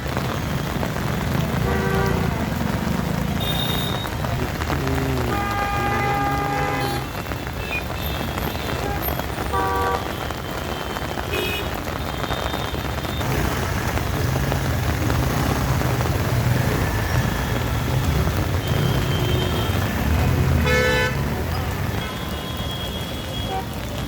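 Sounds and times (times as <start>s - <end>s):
rain falling: 0.0s - 24.0s
vehicle horns honking: 3.4s - 4.2s, 5.2s - 13.2s, 18.6s - 23.9s.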